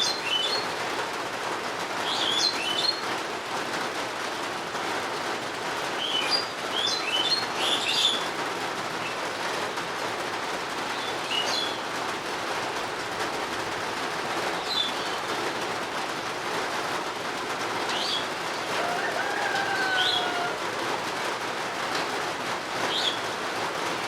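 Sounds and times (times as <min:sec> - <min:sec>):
small birds chirping: 0:00.0 - 0:00.8, 0:02.0 - 0:03.0, 0:06.0 - 0:08.3, 0:10.8 - 0:11.9, 0:14.5 - 0:15.4, 0:17.8 - 0:18.8, 0:22.9 - 0:23.3
steady rain falling: 0:00.0 - 0:24.0.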